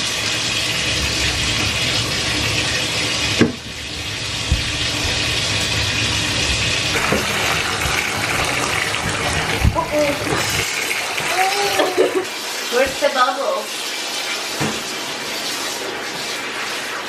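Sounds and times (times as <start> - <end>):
water pouring into bathtub: 0.0 - 17.0
knock: 4.4 - 5.2
soft thumps: 4.4 - 5.3.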